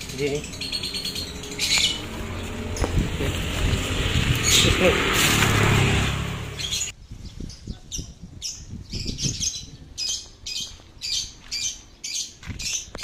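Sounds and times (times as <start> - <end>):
small bird chirping: 0.0 - 3.1
low rumble: 0.0 - 6.9.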